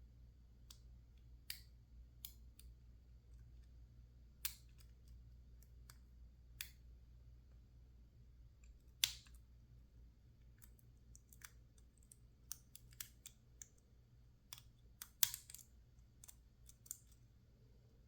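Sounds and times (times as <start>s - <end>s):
lock picks clicking in padlock: 14.5s - 17.2s.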